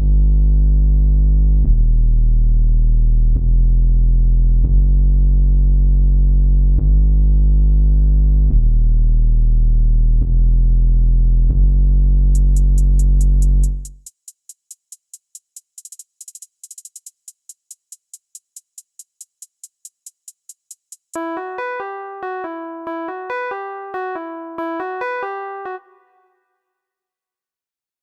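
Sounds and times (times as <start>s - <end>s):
fast hi-hats ticking: 12.4s - 21.2s
plucked keyboard melody: 21.2s - 26.2s.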